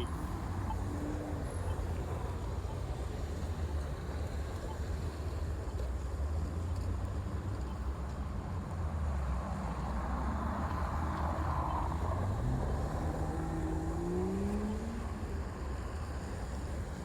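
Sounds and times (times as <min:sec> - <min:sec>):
vehicle accelerating past: 0:10.3 - 0:15.3.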